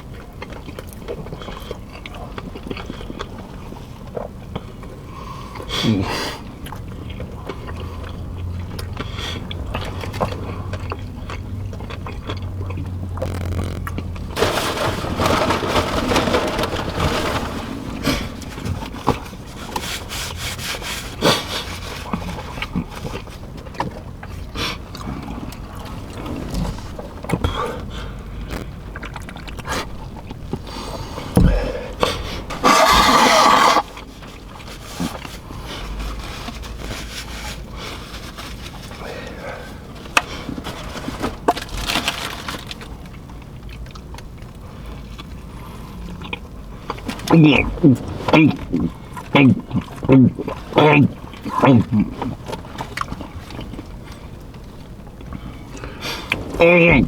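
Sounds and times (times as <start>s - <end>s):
people chewing food: 0.0s - 57.0s
low steady hum: 6.4s - 57.0s
wrapper rustling: 13.2s - 23.4s, 29.9s - 43.1s
food wrappers and tray handling: 13.2s - 24.0s, 28.5s - 43.2s.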